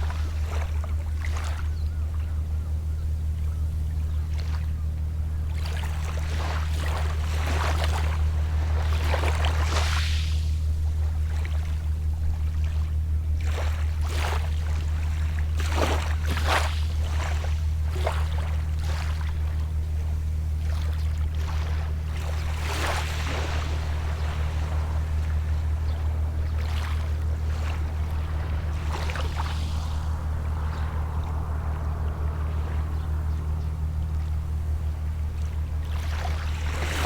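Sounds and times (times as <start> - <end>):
boat engine humming: 0.0 - 37.0
small waves washing onto shore: 5.6 - 11.6, 13.4 - 37.0.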